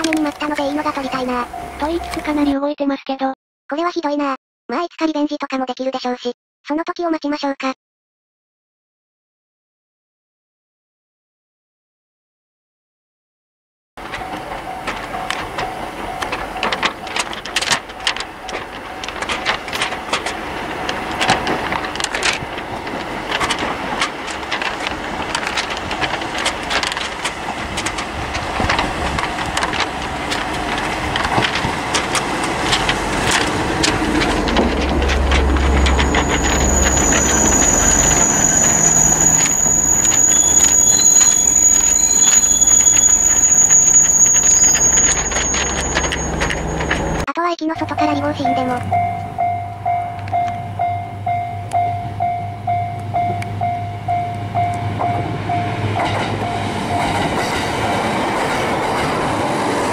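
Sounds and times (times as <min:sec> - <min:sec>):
train clicks and rattles: 0:00.0 - 0:02.6, 0:14.0 - 0:59.9
train engine rumble: 0:00.0 - 0:02.6, 0:14.0 - 0:59.9
high brake squeal: 0:35.2 - 0:47.2.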